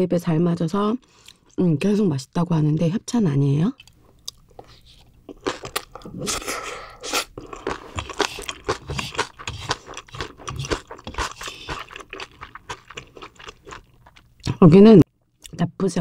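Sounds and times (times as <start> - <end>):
chewing crunchy food: 3.8 - 14.6.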